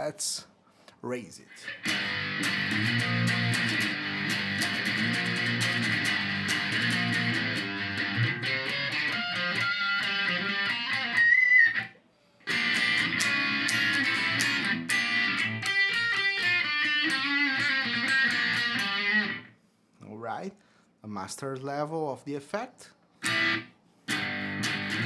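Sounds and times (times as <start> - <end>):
electric guitar strummed and picked: 1.6 - 19.5, 23.2 - 25.0.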